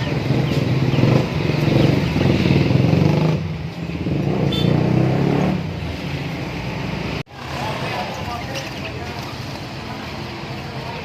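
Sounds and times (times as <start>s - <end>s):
high bird chirp: 0.0s - 2.5s.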